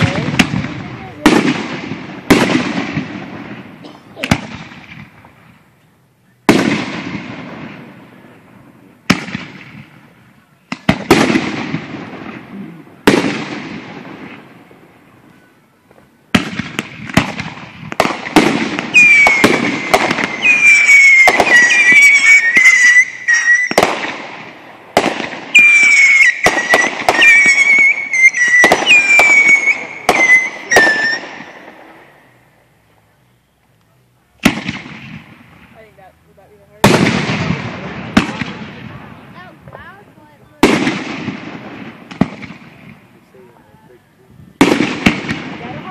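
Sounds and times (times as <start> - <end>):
rapid barrage of firework bangs: 0.0 - 5.5, 6.5 - 15.0, 16.3 - 32.0, 34.4 - 36.0, 36.8 - 43.2, 44.6 - 45.9
firework whistling tones: 9.1 - 33.8
firework shells banging: 16.3 - 32.0.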